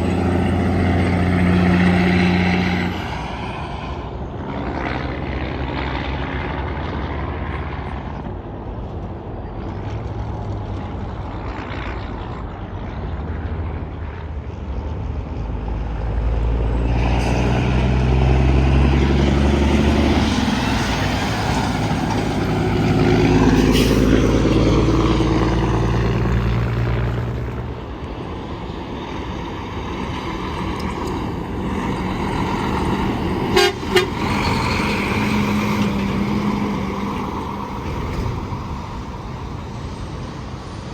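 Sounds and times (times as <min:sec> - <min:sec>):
highway traffic: 0:00.0 - 0:40.9
truck engines and tyres passing: 0:00.0 - 0:40.9
horn blast: 0:33.4 - 0:34.4.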